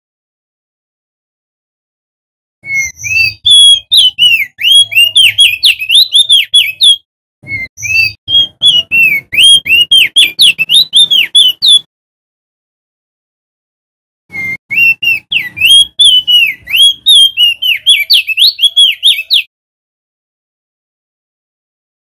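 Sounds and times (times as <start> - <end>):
bird whistling rapid notes: 2.6 - 11.9, 14.3 - 19.5.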